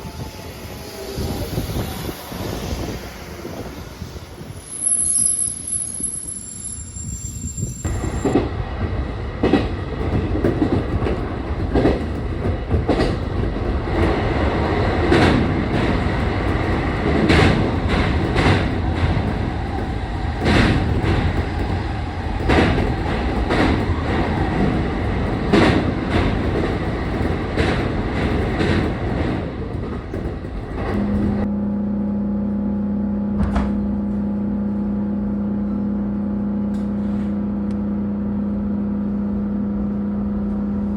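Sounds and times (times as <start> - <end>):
train rumbling: 0.0 - 40.9
wheels clacking over rail joints: 9.4 - 31.5.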